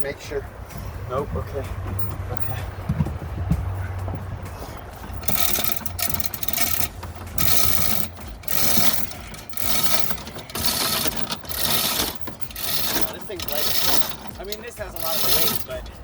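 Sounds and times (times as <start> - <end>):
hand hoist rasping rattle: 4.7 - 16.0.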